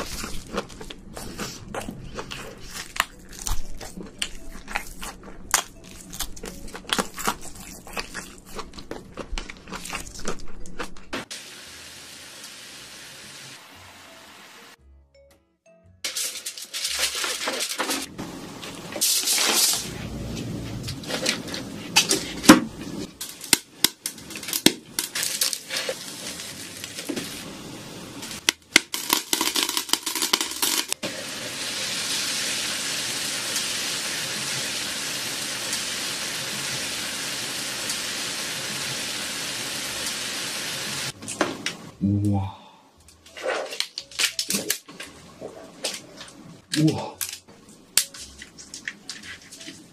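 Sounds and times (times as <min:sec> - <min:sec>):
shrimp cooking hiss: 0:11.2 - 0:14.8, 0:29.0 - 0:41.2
salt grains crackling on foil: 0:16.1 - 0:18.1, 0:23.2 - 0:27.5, 0:28.3 - 0:31.0.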